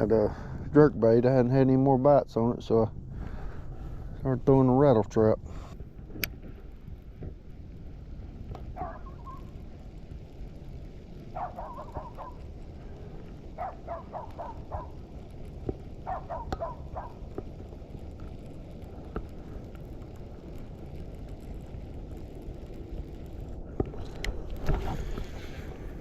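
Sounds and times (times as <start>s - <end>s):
wind noise: 0.0s - 26.0s
rapid bird calls: 8.8s - 9.5s, 11.4s - 12.4s.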